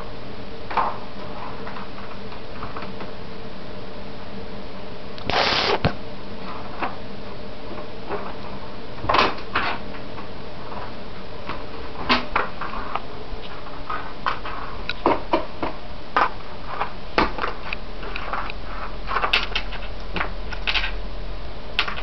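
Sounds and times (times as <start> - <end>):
steady hiss: 5.2 - 6.0.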